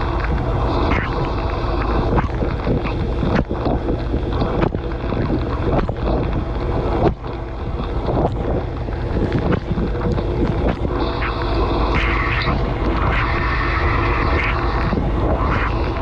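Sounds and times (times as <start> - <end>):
wash pump drone: 0.0 - 16.0
dishwasher water spraying: 10.9 - 16.0.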